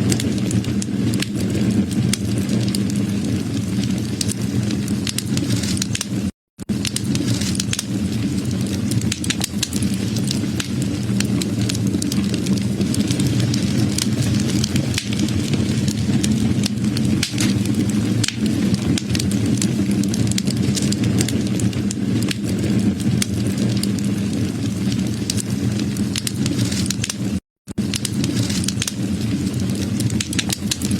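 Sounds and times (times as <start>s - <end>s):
low rumble of burning: 0.0s - 30.9s
wood fire crackling: 0.0s - 30.9s.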